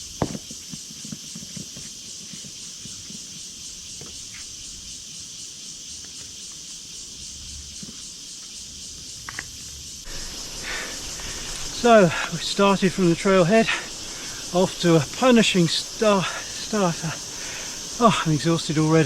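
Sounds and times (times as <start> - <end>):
chorus of forest insects: 0.0 - 19.0
footsteps on trail: 10.1 - 19.0.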